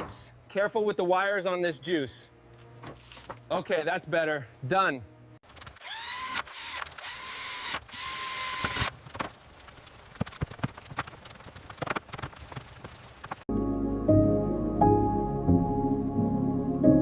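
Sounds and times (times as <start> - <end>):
mechanical whirring whine: 5.8 - 13.4.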